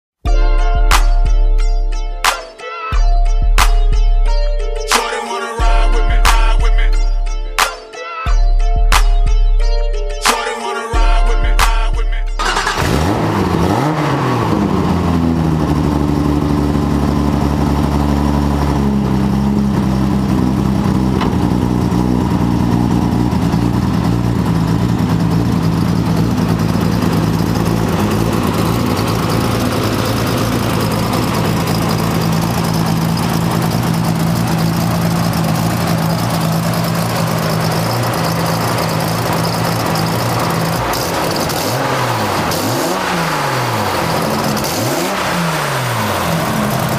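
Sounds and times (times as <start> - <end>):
car engine idling: 12.4 - 46.9
car engine revving: 12.4 - 46.9.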